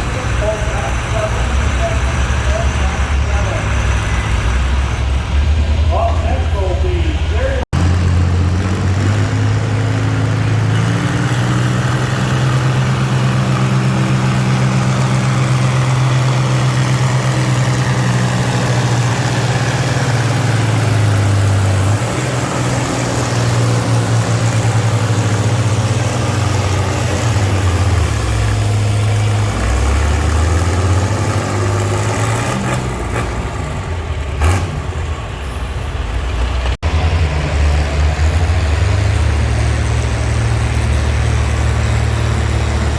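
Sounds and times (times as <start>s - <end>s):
tractor engine running hard: 0.0s - 42.9s.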